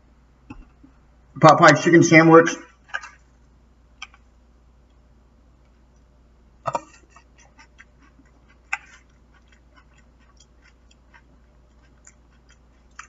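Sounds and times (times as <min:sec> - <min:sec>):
chewing clicks: 0:06.7 - 0:13.0
crunchy bites of fried chicken: 0:06.7 - 0:13.0.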